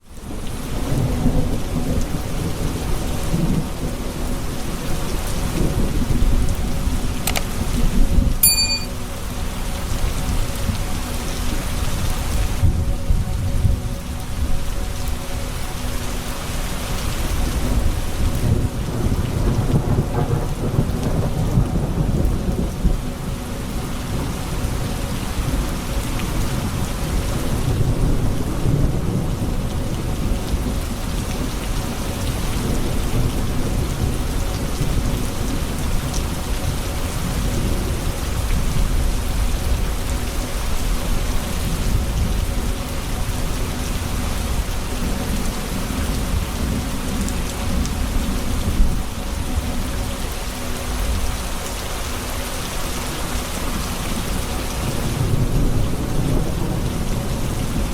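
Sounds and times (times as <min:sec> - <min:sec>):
steady rain falling: 0:00.0 - 0:57.9
low rolling thunder: 0:17.3 - 0:25.6, 0:26.3 - 0:31.6, 0:53.8 - 0:57.9.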